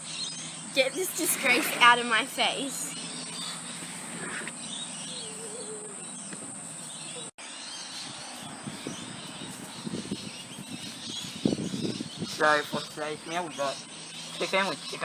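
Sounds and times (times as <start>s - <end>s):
faint wavering chirp: 2.1s - 12.4s.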